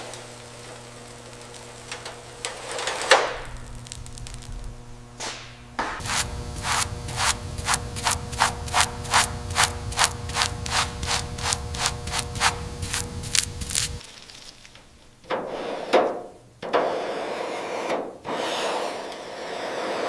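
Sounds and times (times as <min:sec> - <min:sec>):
steady low hum: 0:00.0 - 0:14.0
rhythmic rubbing strokes: 0:02.6 - 0:14.0.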